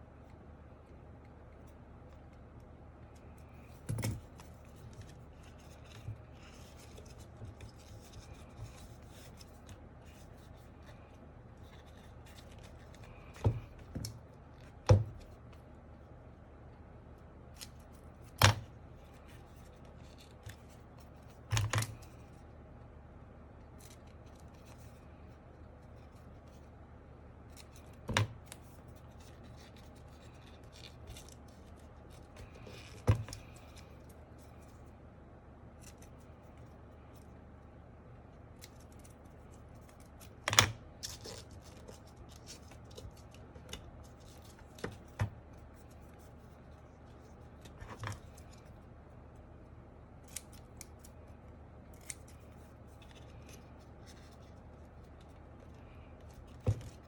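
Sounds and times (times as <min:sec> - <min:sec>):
faint scraping and rustling: 0:00.2 - 0:16.2, 0:27.4 - 0:49.6, 0:50.2 - 0:57.0.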